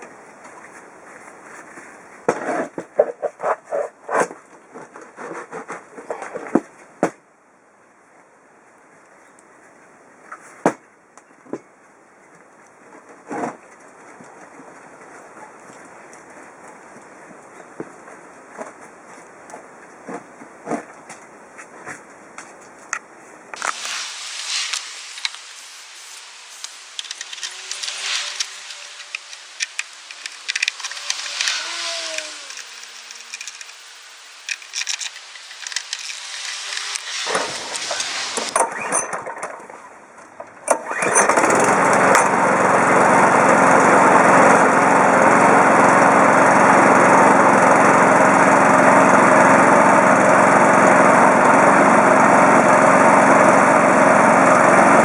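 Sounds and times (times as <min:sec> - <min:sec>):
lawn mower engine running: 0:23.6 - 0:55.0.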